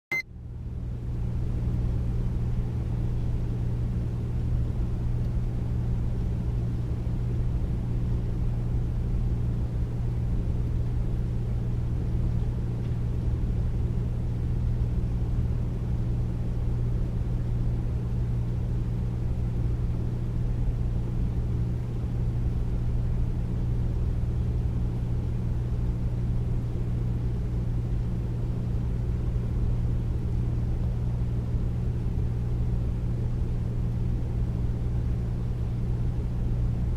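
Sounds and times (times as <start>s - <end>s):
air conditioner humming: 0.1s - 36.9s.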